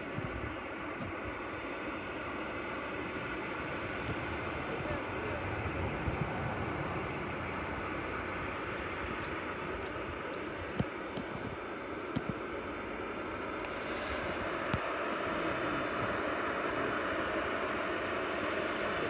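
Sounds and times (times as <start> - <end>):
aircraft engine rushing: 0.0 - 19.0
sharp clicks: 10.6 - 11.6, 12.2 - 12.4.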